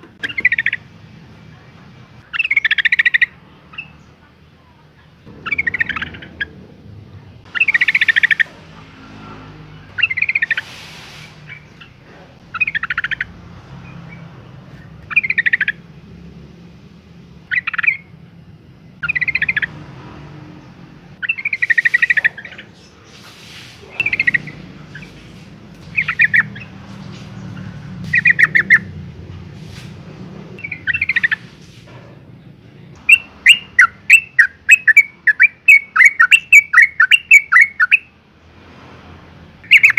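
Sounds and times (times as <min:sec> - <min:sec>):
bird chattering calls: 0:00.2 - 0:00.9, 0:02.2 - 0:04.1, 0:05.2 - 0:06.8, 0:07.4 - 0:16.2, 0:17.4 - 0:18.2, 0:19.0 - 0:19.8, 0:20.6 - 0:29.1, 0:30.6 - 0:31.8, 0:33.0 - 0:38.1, 0:39.6 - 0:39.9.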